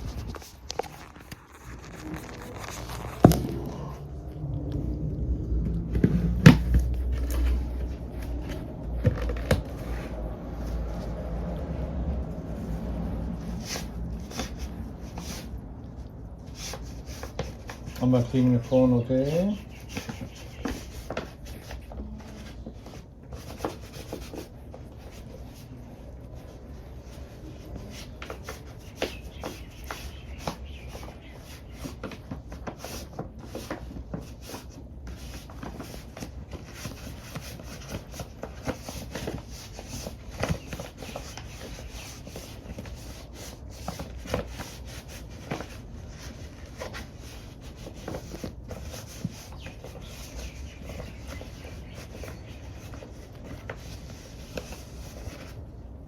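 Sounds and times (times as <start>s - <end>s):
cloth rubbing on plastic: 0.0s - 3.9s.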